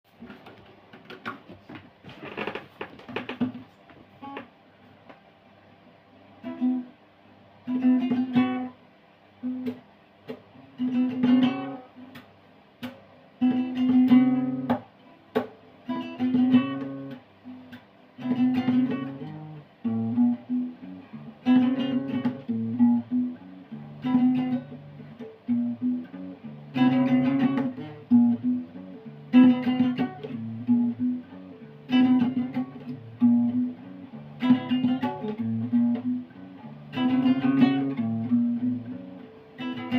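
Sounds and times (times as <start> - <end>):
acoustic guitar strumming: 7.6 - 8.8, 9.4 - 12.2, 13.4 - 39.9.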